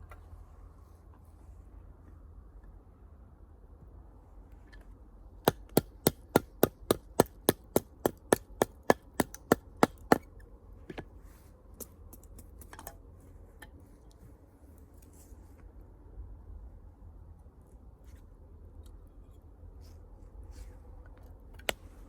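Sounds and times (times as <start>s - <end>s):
chopping strikes on firewood: 5.5s - 10.3s.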